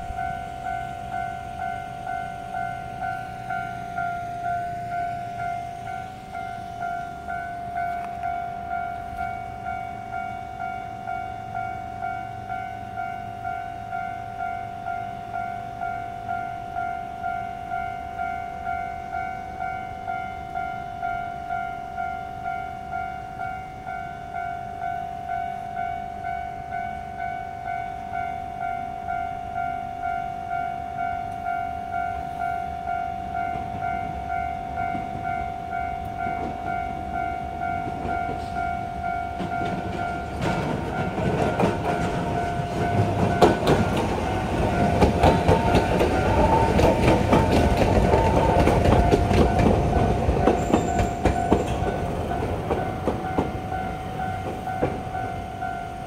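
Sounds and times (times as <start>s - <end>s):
two-tone warning chime: 0.0s - 56.0s
train wheels clacking: 34.8s - 56.0s.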